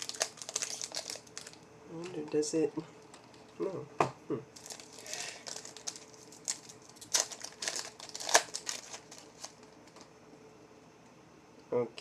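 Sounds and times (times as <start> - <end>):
trading cards crinkling: 0.0 - 3.6, 4.6 - 10.1.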